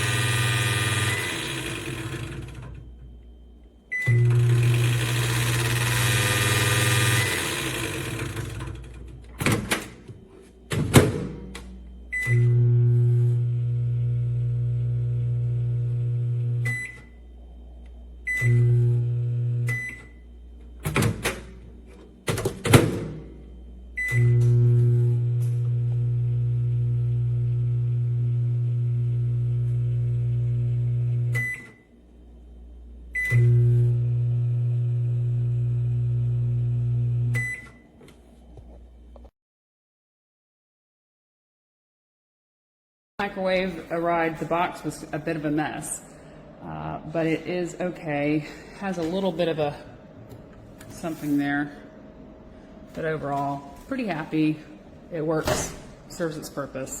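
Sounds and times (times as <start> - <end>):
microwave beep: 0.0 - 2.4, 3.9 - 7.8, 12.1 - 14.5, 15.1 - 17.2, 18.2 - 20.3, 24.0 - 25.7, 31.2 - 31.9, 33.1 - 35.1, 36.5 - 37.9
microwave oven humming: 0.0 - 39.3, 44.4 - 50.9.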